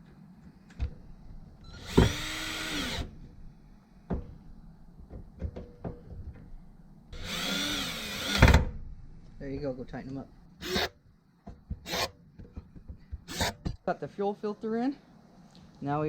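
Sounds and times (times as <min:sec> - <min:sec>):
power drill whirring: 0:01.7 - 0:03.1, 0:07.2 - 0:08.6, 0:10.6 - 0:11.0, 0:11.8 - 0:12.2, 0:13.2 - 0:13.8
tools knocking: 0:05.0 - 0:06.5, 0:11.5 - 0:13.8.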